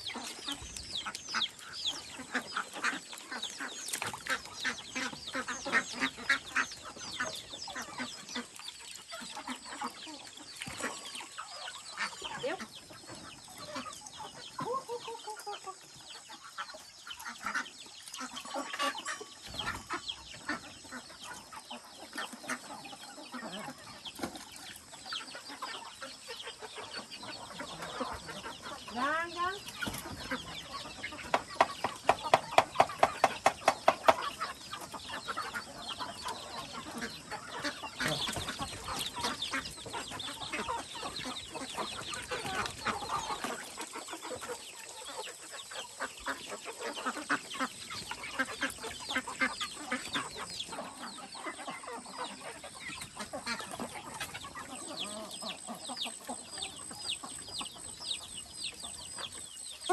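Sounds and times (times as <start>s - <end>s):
chickens clucking: 0.0s - 59.9s
chicks peeping: 0.0s - 59.9s
loud fast knocks: 31.3s - 34.3s.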